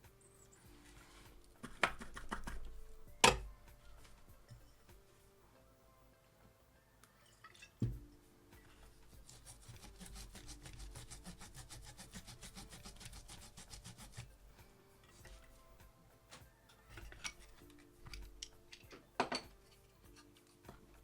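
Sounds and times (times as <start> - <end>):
rapid scrubbing strokes: 9.1 - 14.4.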